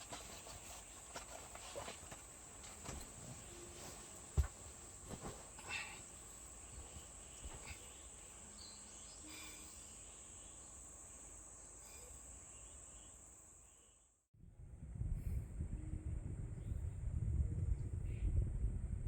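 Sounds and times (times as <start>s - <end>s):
insects buzzing: 0.0s - 14.1s
faint chirps: 5.6s - 14.1s.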